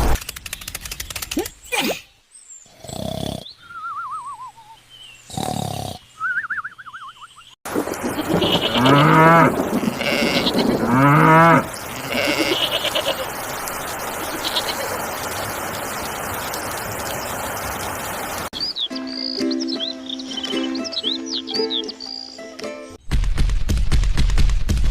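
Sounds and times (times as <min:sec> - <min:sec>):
quavering animal bleats: 0:08.2 - 0:13.3, 0:14.2 - 0:15.0
steady hiss: 0:11.6 - 0:18.5.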